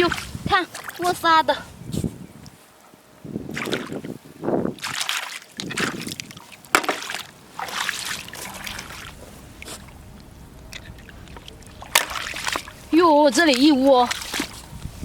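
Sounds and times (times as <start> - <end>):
scooping wet sand and water: 0.0 - 1.4, 3.4 - 15.0.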